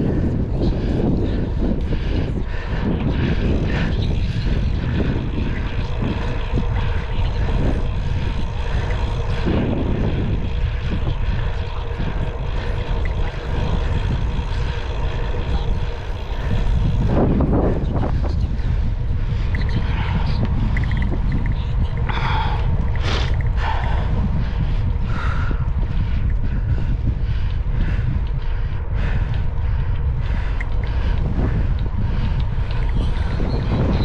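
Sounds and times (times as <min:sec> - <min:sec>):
steady hum: 0:00.0 - 0:34.0
wind rumble on microphone: 0:00.0 - 0:34.0.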